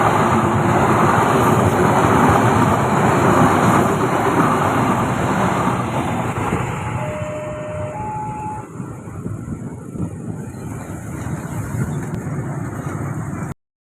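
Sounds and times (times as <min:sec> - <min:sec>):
passenger train passing: 0:00.0 - 0:13.5
brief steady tones: 0:05.5 - 0:08.9.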